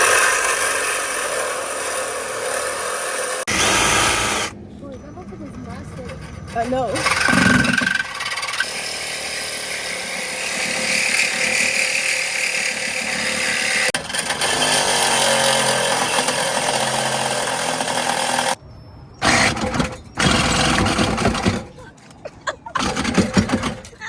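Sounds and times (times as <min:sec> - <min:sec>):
power tool running loudly: 0:00.0 - 0:04.6, 0:07.0 - 0:18.6.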